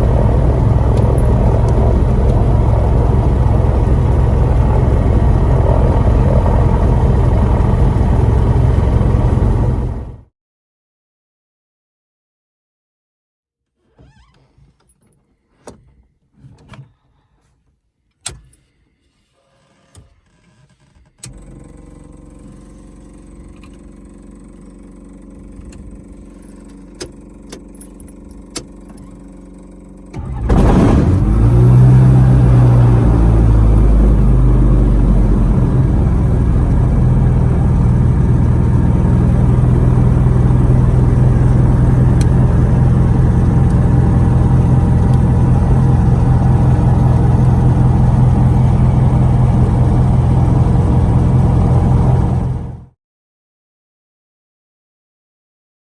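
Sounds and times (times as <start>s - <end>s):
steady quiet hum: 0.0s - 10.0s
aircraft engine running: 0.0s - 10.3s, 30.2s - 52.9s.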